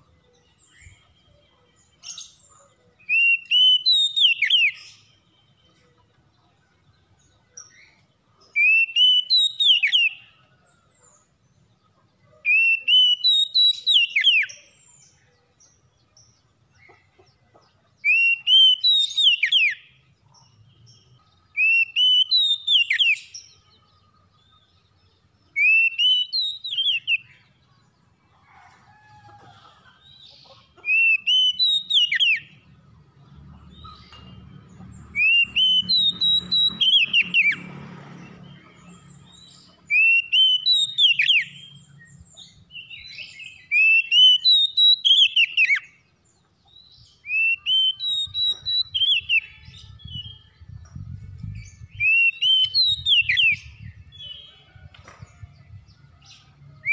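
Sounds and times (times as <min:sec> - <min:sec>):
bird singing whistled phrase: 0:47.3 - 0:49.5.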